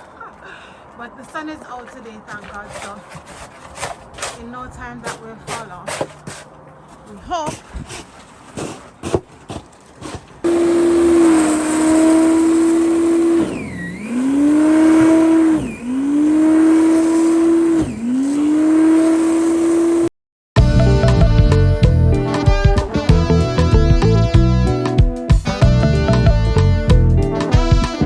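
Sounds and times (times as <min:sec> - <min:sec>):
tyres spinning in snow: 0:01.1 - 0:20.1
car engine revving: 0:10.5 - 0:22.3.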